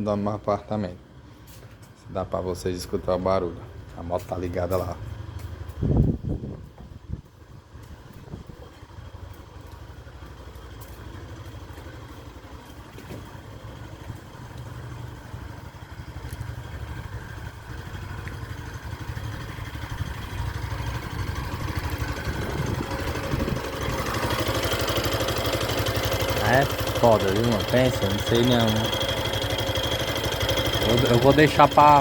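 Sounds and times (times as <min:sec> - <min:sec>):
motorcycle engine idling: 0:02.8 - 0:32.0.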